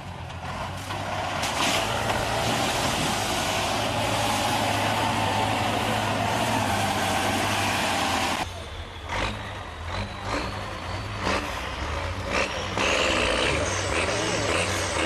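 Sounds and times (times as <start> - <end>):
diesel truck engine: 0.0 - 15.0.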